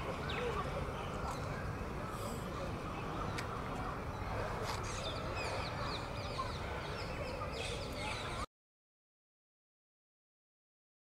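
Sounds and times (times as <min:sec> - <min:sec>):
birds chirping: 0:00.0 - 0:08.5
low background noise: 0:00.0 - 0:08.5.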